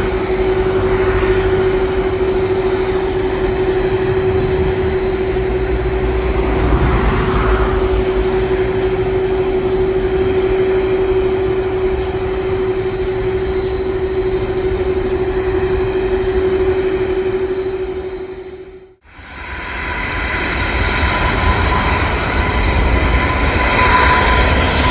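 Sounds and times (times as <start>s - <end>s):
constant whining tone: 0.0s - 24.9s
jet engines roaring at takeoff: 0.0s - 24.9s.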